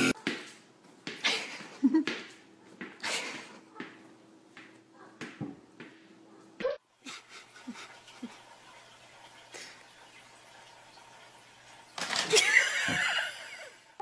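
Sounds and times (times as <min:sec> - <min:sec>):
knocks and scuffs on hard floor: 0:00.2 - 0:03.0, 0:03.8 - 0:06.7.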